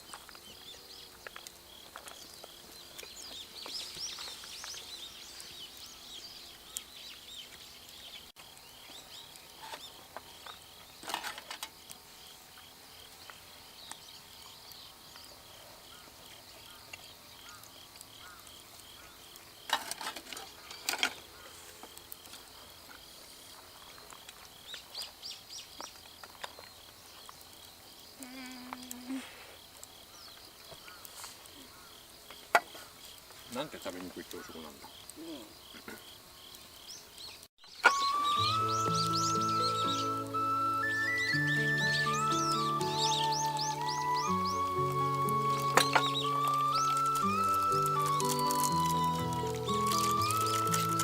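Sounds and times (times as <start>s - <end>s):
birds chirping: 0.0s - 11.0s, 30.0s - 51.0s
rustling or clattering: 11.0s - 11.8s, 19.7s - 21.9s, 45.2s - 51.0s.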